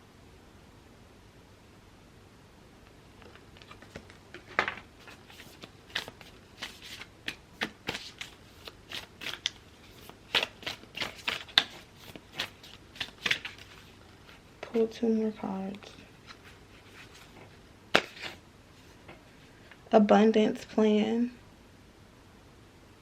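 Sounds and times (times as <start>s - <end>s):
cards being shuffled: 3.2s - 14.9s, 15.5s - 19.0s.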